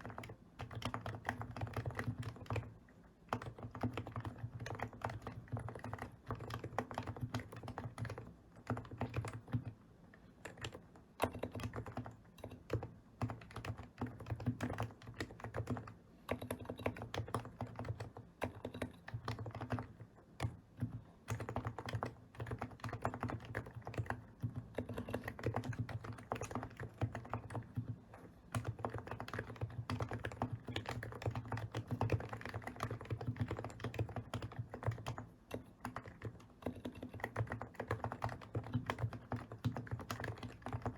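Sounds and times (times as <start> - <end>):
keyboard typing: 0.0 - 2.7, 3.3 - 9.8, 10.4 - 40.9.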